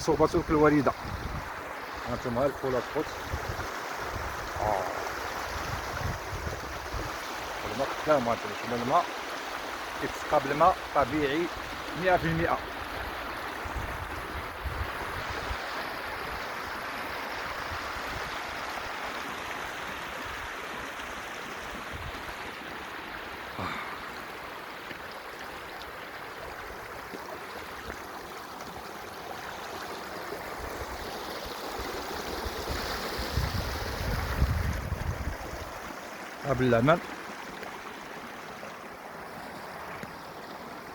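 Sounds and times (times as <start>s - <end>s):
water flowing in a channel: 0.0s - 40.9s
wind buffeting microphone: 0.3s - 1.6s, 3.3s - 7.2s, 33.2s - 35.7s.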